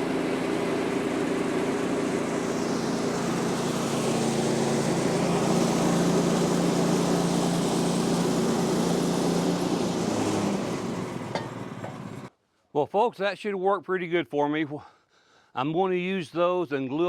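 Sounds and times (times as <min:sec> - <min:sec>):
sawmill gas engine running: 0:00.0 - 0:12.3.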